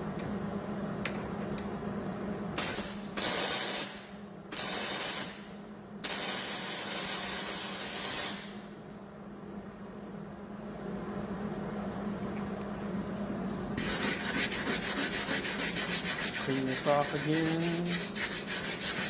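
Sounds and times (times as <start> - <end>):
steady low hum: 0.0 - 4.6, 5.3 - 19.0
welding arc hissing crackle: 2.6 - 8.7.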